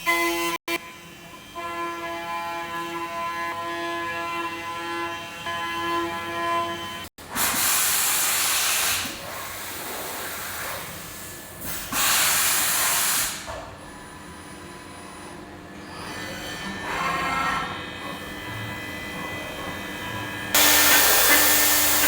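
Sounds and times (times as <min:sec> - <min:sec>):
machine running noise: 0:13.8 - 0:22.0
machine whine: 0:14.2 - 0:22.0
hissing spray bursts: 0:20.6 - 0:22.0.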